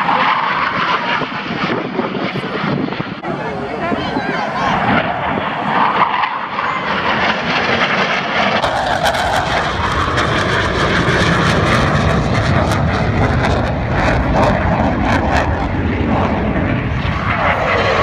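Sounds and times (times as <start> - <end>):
jet flying over: 0.0 - 18.0.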